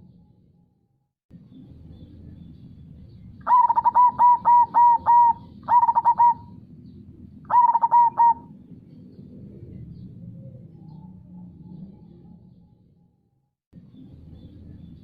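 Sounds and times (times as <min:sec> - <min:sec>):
dove cooing: 0:03.4 - 0:06.6, 0:07.5 - 0:08.6.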